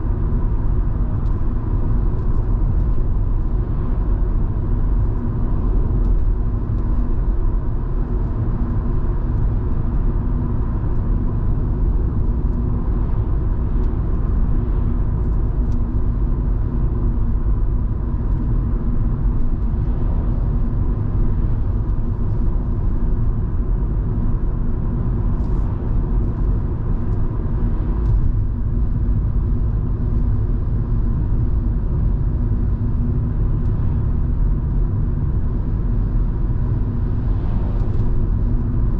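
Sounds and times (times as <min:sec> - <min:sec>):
car engine hum: 0:00.0 - 0:38.9
road noise while cruising: 0:00.0 - 0:38.9.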